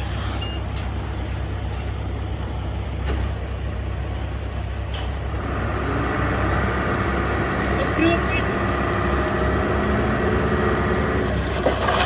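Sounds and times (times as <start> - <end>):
heavy diesel engine running: 0.0 - 12.0.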